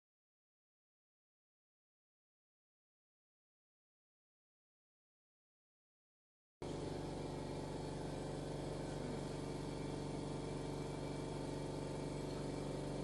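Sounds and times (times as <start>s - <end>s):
car engine idling: 6.6s - 13.0s.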